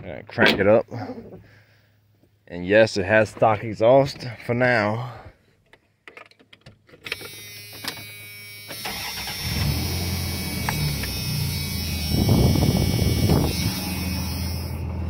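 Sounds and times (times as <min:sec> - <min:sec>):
car engine starting and running: 0:08.7 - 0:15.0.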